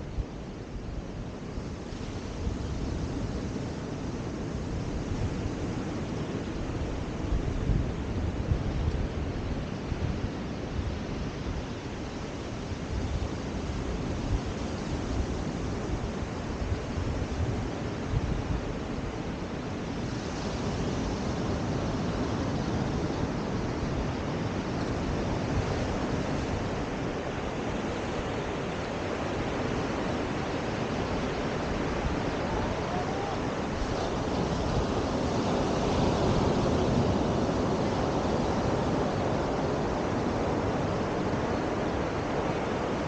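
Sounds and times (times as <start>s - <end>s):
wind: 0.0s - 43.0s
surf rushing: 23.3s - 43.0s.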